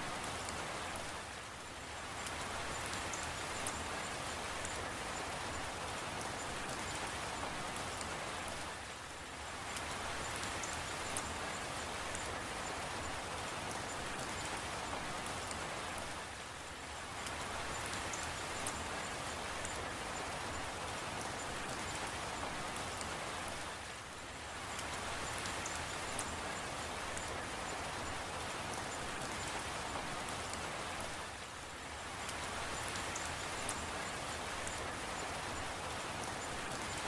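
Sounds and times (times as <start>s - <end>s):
steady rain hiss: 0.0s - 37.0s
raindrop ticks: 24.6s - 31.2s, 32.2s - 37.0s.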